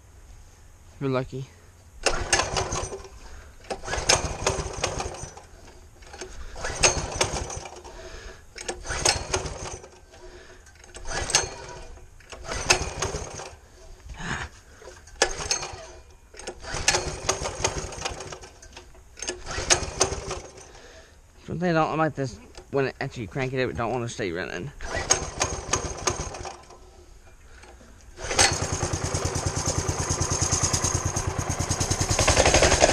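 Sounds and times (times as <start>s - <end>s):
small engine cranking and sputtering: 2.0s - 13.9s, 14.8s - 21.0s, 24.8s - 32.9s.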